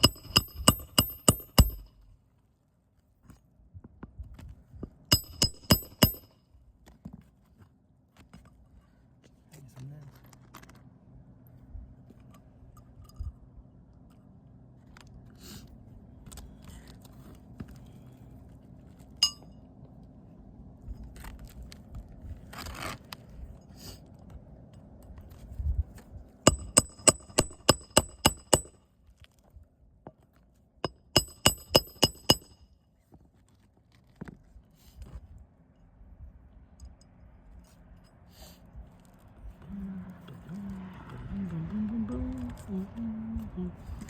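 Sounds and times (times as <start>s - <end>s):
hammer striking nails: 0.0s - 1.9s, 5.1s - 6.4s, 26.5s - 28.8s, 30.8s - 32.6s.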